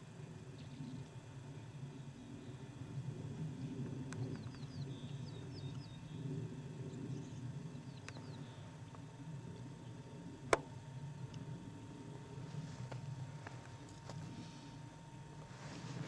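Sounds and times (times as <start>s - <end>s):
steady low rumble: 0.0s - 16.0s
bird chirping: 7.1s - 8.7s.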